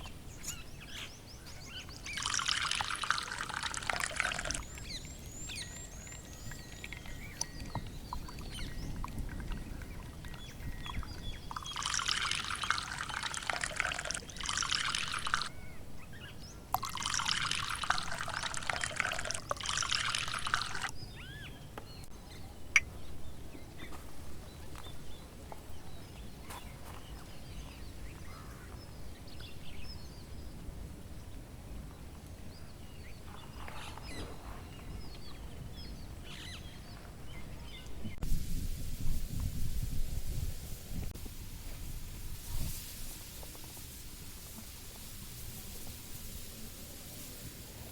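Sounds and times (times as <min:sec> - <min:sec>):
faint bird chirps: 0:00.0 - 0:30.6
liquid pouring: 0:01.8 - 0:15.5, 0:16.7 - 0:20.9.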